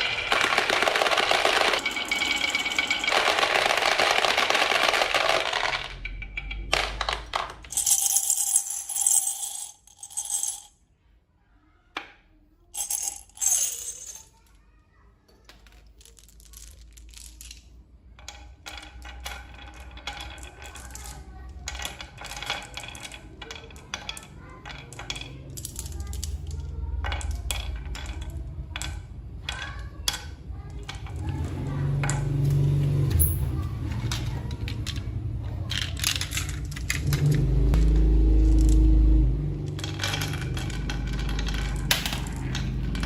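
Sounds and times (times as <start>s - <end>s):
metallic clinking and jingling: 1.5s - 3.8s, 7.7s - 10.7s, 33.1s - 35.0s.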